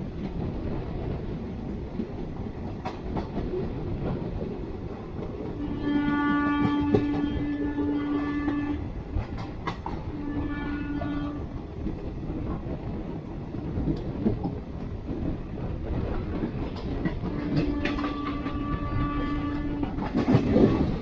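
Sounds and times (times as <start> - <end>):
train running on track: 0.0 - 21.0
train horn blasts: 5.6 - 8.9, 10.1 - 11.5, 17.2 - 20.3.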